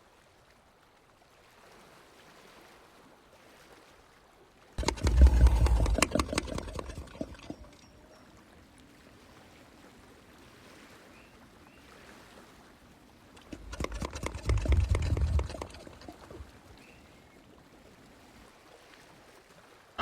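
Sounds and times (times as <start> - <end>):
peccaries clicking: 4.8 - 8.0, 13.4 - 16.5.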